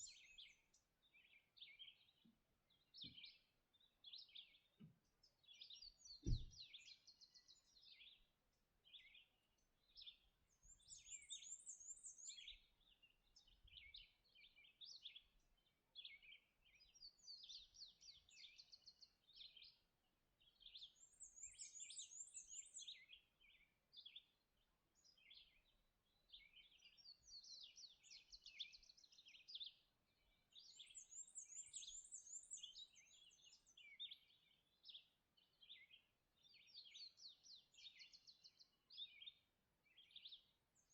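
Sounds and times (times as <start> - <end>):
songbirds singing: 0.0 - 40.9
low thump: 6.2 - 6.6.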